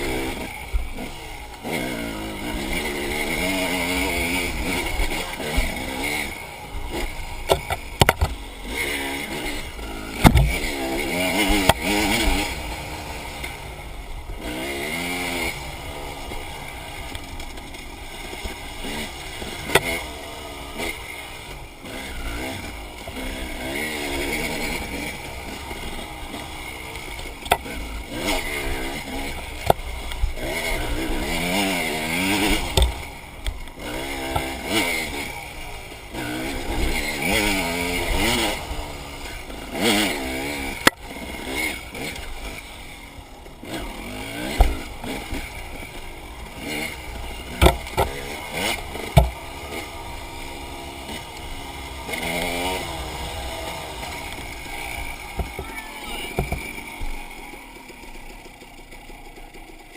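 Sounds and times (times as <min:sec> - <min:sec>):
dirt bike engine revving: 0:00.0 - 0:59.9
sharp knocks: 0:10.2 - 0:10.5.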